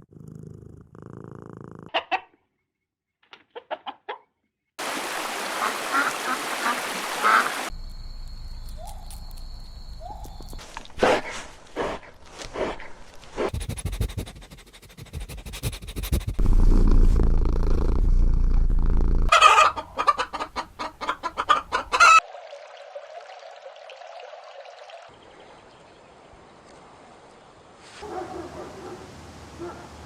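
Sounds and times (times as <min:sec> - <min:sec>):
low rumbling noise: 0:16.4 - 0:19.3
chickens clucking: 0:19.3 - 0:22.2.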